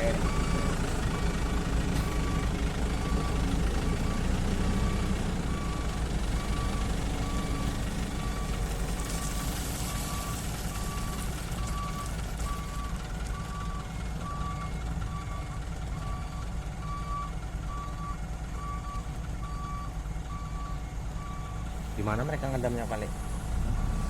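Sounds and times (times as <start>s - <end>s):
backup alarm beeping: 0.0s - 8.5s
diesel engine running: 0.0s - 24.0s.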